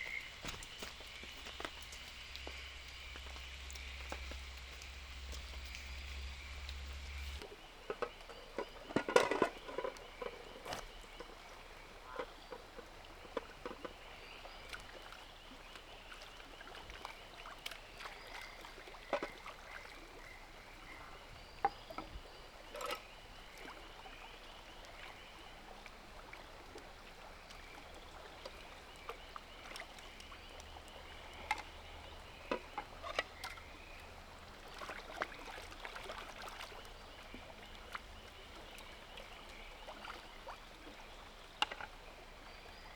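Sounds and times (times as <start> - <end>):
rainforest background: 0.0 - 42.9
objects knocking and clicking: 7.9 - 10.4.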